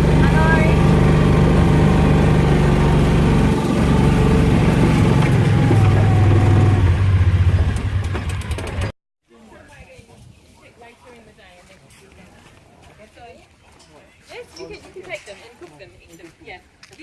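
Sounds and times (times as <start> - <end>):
vehicle engine running: 0.0 - 8.9.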